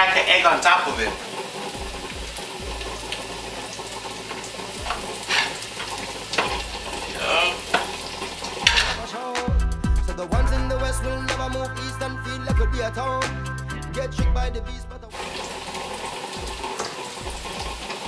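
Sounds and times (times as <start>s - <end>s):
onions sizzling in oil: 0.0s - 9.1s, 15.1s - 18.0s
background music: 0.0s - 18.0s
utensil scraping pan: 4.9s - 6.7s, 8.6s - 9.1s.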